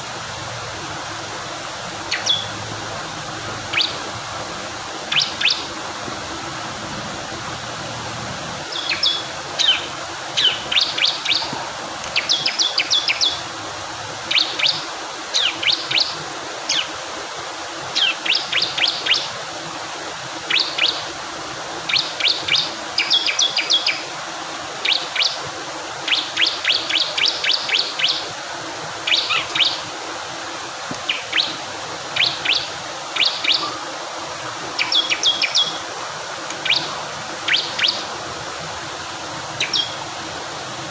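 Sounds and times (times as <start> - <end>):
fast-flowing water rushing: 0.0 - 40.9
bird singing high chirps: 2.1 - 2.6, 3.7 - 4.1, 5.1 - 5.7, 8.7 - 11.5, 12.1 - 13.4, 14.3 - 14.8, 21.9 - 24.0, 24.8 - 25.4, 26.1 - 28.2, 29.0 - 29.8, 31.0 - 31.6, 32.2 - 33.8, 34.8 - 35.8, 36.6 - 38.1, 39.6 - 40.1.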